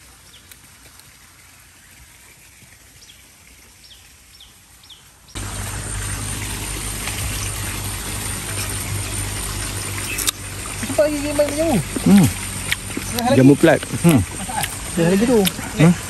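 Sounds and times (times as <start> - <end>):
river water rushing: 5.4 - 16.0.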